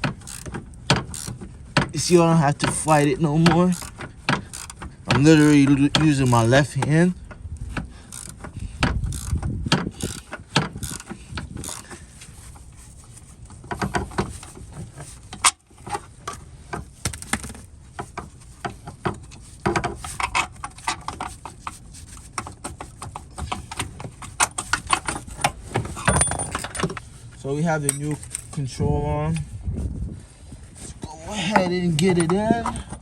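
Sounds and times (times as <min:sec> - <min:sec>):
ratchet wrench clicking: 0:00.1 - 0:01.4, 0:03.7 - 0:06.4, 0:08.0 - 0:12.0
metal tools clinking: 0:24.6 - 0:27.0, 0:27.7 - 0:28.6.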